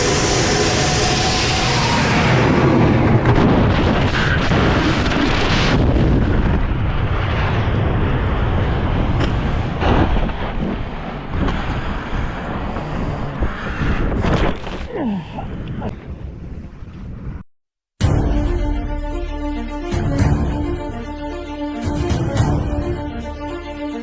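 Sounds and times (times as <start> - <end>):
loud rumbling roar: 0.0 - 9.7.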